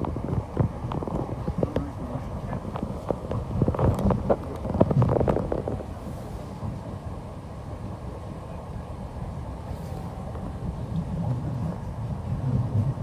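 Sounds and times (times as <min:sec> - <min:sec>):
electric train low rumble: 0:00.0 - 0:13.0.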